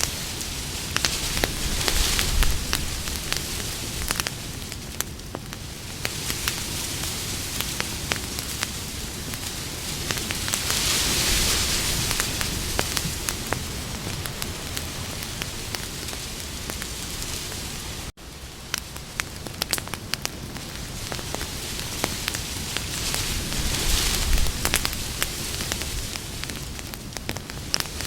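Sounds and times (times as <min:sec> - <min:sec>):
campfire hissing and crackling: 0:00.0 - 0:28.0.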